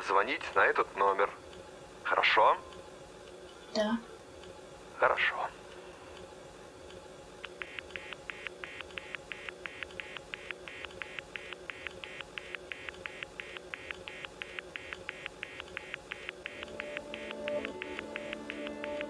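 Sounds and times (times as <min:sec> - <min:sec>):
faint steady hum: 0:00.0 - 0:19.0
rapid telephone beeps: 0:07.5 - 0:19.0
low music: 0:16.5 - 0:19.0.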